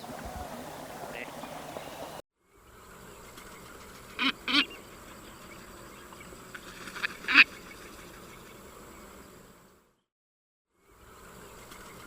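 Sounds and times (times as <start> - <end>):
duck quacking: 1.0 - 1.6.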